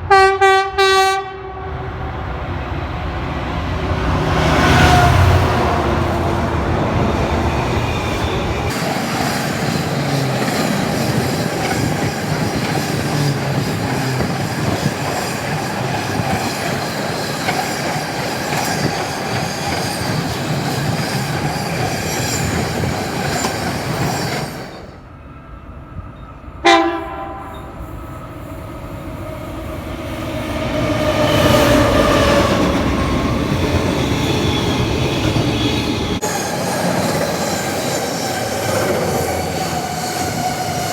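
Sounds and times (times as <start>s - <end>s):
train horn blast: 0.0s - 2.0s, 4.0s - 6.4s, 26.6s - 27.9s
freight train wheels rumbling: 0.0s - 40.9s
wheels squealing: 7.0s - 25.0s.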